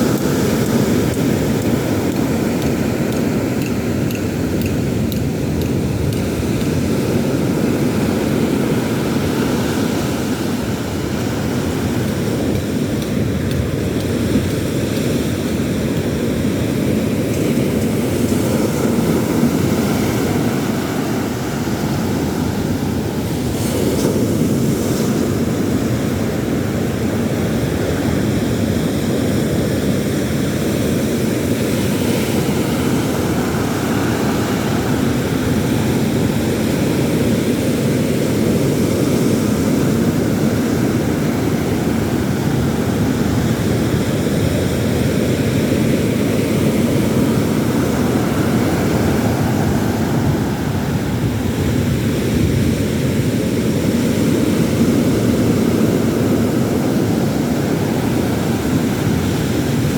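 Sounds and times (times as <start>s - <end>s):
sea surf roaring: 0.0s - 59.9s
wind buffeting microphone: 0.0s - 59.9s.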